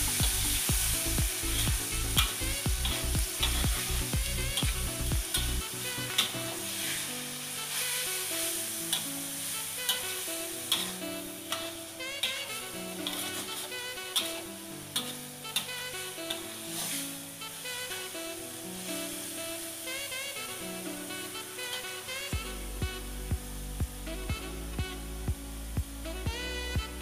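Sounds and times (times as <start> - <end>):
meat sizzling in a wok: 0.0 - 11.6, 16.8 - 17.1, 18.9 - 19.4
background music: 0.0 - 27.0
metal spatula scraping a wok: 2.9 - 4.6, 5.3 - 10.0, 12.2 - 14.4, 16.8 - 17.1.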